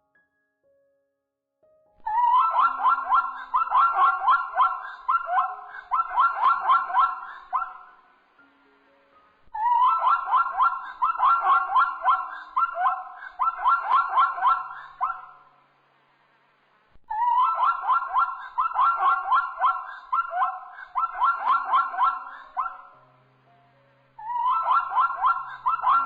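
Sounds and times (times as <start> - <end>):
zebra barking calls: 2.3 - 7.9, 9.6 - 15.3, 17.1 - 23.0, 24.2 - 26.0.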